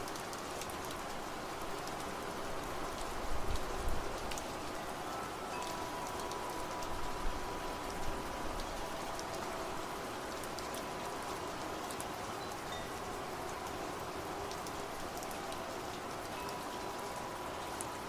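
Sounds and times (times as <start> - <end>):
steady rain: 0.0 - 18.0
wind chimes ringing: 4.8 - 9.9, 12.4 - 13.2, 16.3 - 17.8.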